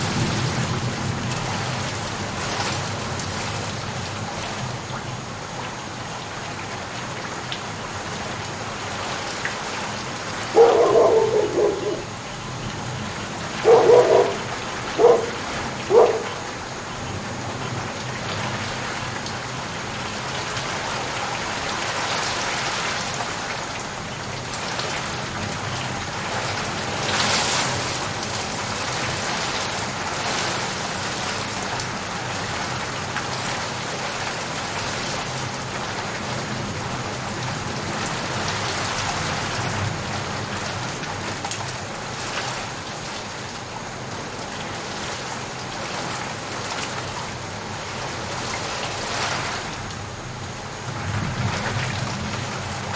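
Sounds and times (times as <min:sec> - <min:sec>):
steady rain hiss: 0:00.0 - 0:52.9
dog barking: 0:10.5 - 0:16.8, 0:25.4 - 0:27.4.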